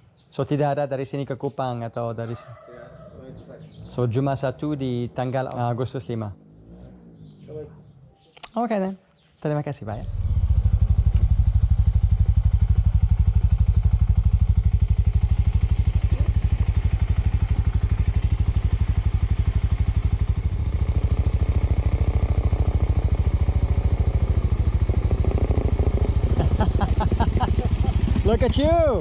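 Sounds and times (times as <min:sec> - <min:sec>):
motorcycle engine running: 0:10.0 - 0:29.0.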